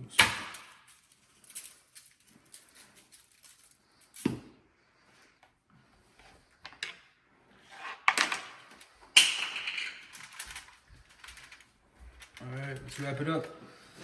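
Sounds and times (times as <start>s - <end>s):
rustling and crinkling: 7.8s - 14.0s.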